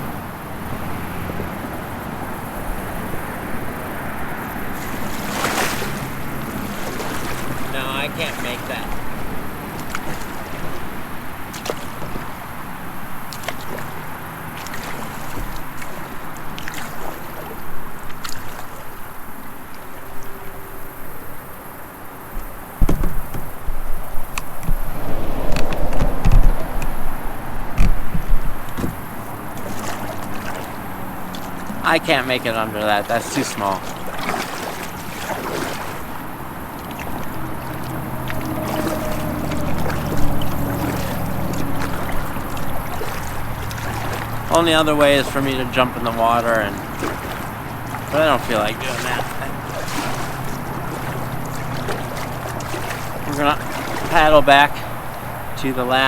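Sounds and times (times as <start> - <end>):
wind on microphone: 0.0 - 14.4, 22.3 - 31.9
water lapping against kayak hull: 0.0 - 56.0.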